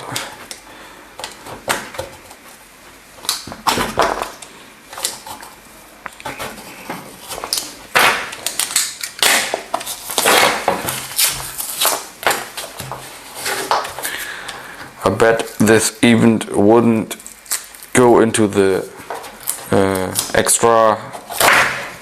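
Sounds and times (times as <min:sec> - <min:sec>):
paper and cardboard tearing: 0:06.2 - 0:13.7, 0:19.3 - 0:22.0.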